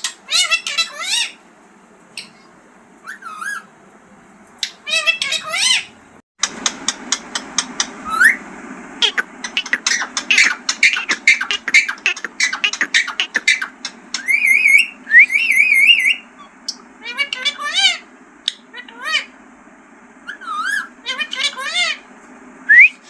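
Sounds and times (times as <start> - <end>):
parakeet clicks and chirps: 9.0 - 13.5
parakeet warbling whistle: 9.0 - 13.6.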